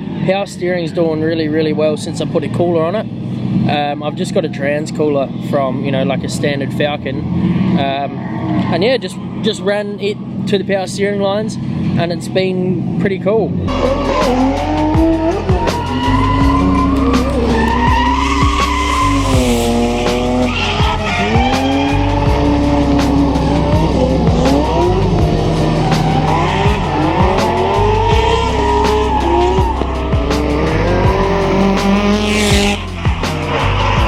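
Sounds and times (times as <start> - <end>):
background music with bass: 0.0 - 34.0
car engine revving: 12.7 - 34.0
tyre squeal: 13.7 - 22.6.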